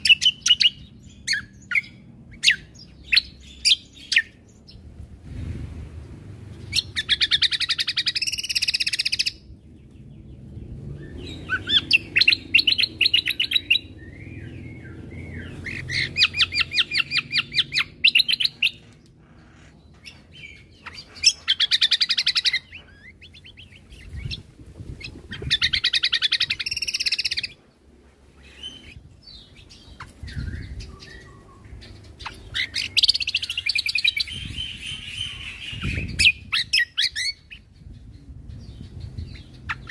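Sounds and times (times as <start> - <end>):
songbird trilling: 6.6 - 9.5, 11.0 - 27.6, 28.4 - 39.9.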